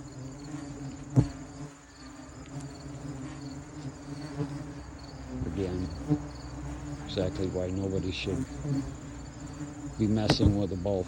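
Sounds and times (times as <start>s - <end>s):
hornets buzzing: 0.0s - 11.0s
sharp knock: 10.2s - 10.7s.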